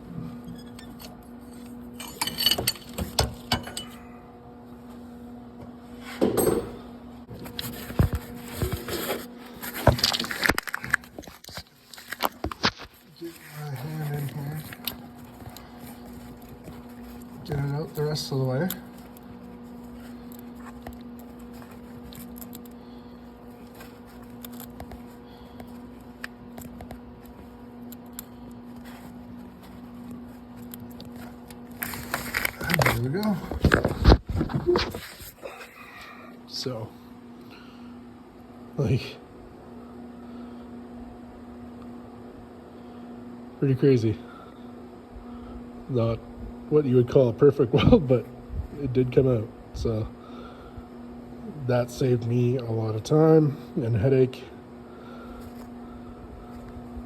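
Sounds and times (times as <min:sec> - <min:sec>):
steady hum: 0:00.0 - 0:57.0
metal wrench clinking on nut: 0:02.0 - 0:04.0.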